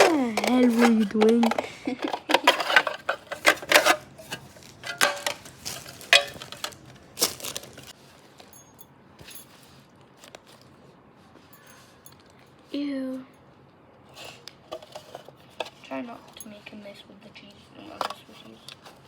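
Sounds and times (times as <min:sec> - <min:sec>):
small hard objects clattering: 0:00.0 - 0:08.6.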